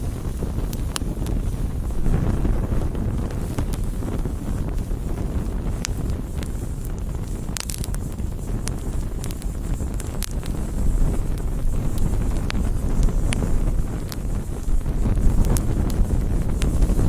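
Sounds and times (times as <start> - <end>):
burning wood crackling and popping: 0.0 - 17.0
roar of flames: 0.0 - 17.0.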